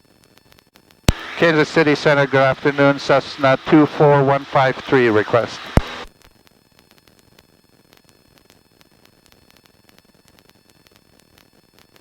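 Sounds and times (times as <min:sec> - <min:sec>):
faint headset hiss and static: 0:01.1 - 0:06.1.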